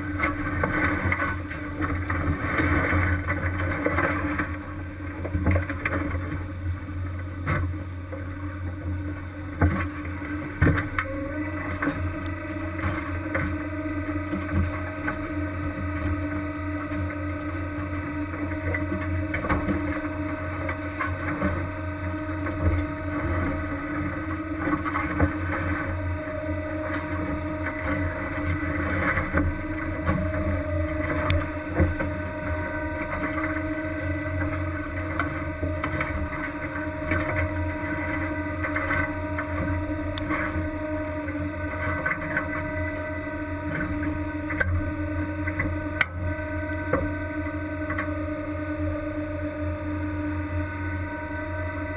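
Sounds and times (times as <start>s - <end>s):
boat engine drone: 0.0s - 51.9s.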